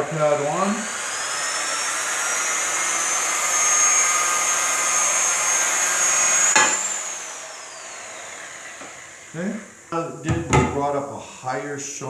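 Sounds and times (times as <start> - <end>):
grinder polishing marble: 0.0 - 10.9.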